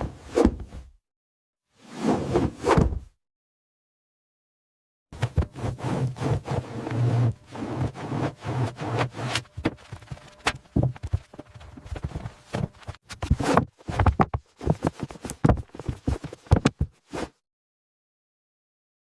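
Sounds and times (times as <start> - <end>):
irregular knocks and clatters: 9.5 - 17.0.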